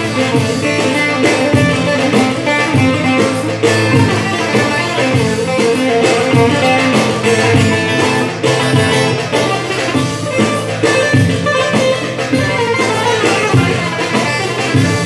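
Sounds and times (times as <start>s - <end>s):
low accompaniment: 0.0s - 15.0s.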